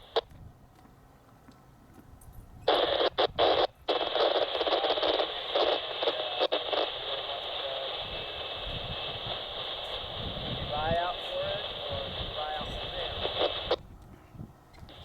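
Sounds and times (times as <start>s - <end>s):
radio static hiss: 0.0s - 0.3s, 2.7s - 13.8s.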